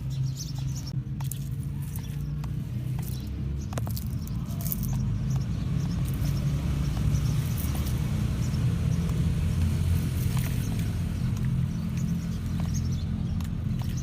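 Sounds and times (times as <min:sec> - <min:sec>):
tyres crackling over dirt and stones: 0:00.5 - 0:14.0.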